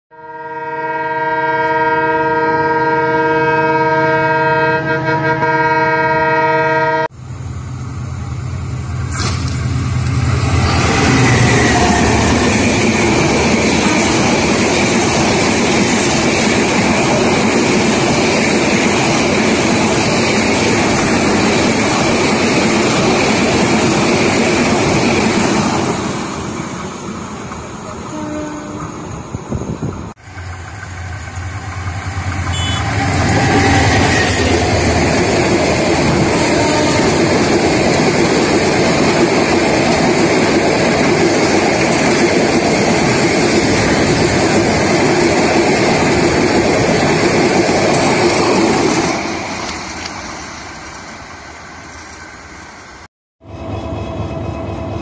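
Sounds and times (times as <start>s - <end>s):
train horn long note: 0.1s - 7.2s, 28.1s - 29.0s, 32.1s - 35.3s, 36.0s - 37.4s, 53.4s - 55.0s
train wheels rushing on rails: 7.1s - 55.0s.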